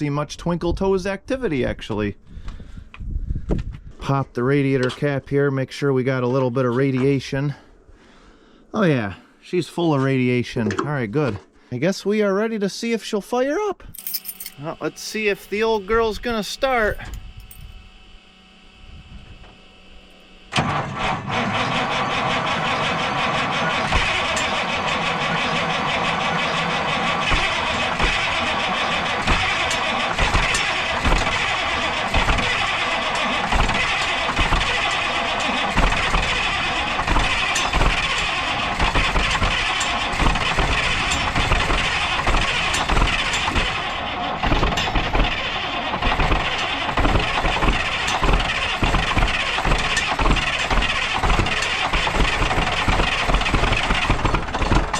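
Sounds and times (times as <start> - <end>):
diesel engine cranking: 13.9 - 17.8, 19.9 - 54.9.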